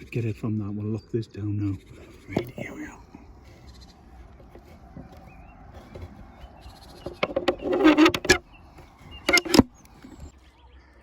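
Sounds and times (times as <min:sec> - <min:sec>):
faint bird chirps: 0:00.0 - 0:11.0
wood scraping rub: 0:02.0 - 0:10.3
wooden box clicks and knocks: 0:04.4 - 0:10.2.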